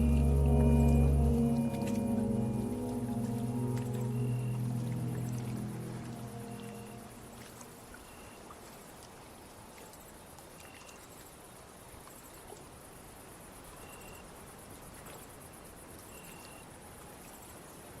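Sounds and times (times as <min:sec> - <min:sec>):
short lower note: 0:00.0 - 0:07.7
crickets chirping: 0:00.0 - 0:08.4.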